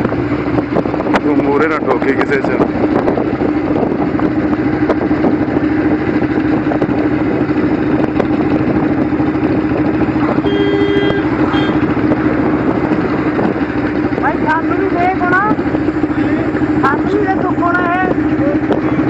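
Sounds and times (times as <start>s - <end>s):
motorcycle engine running: 0.0s - 19.0s
short pitched tone: 10.4s - 12.0s.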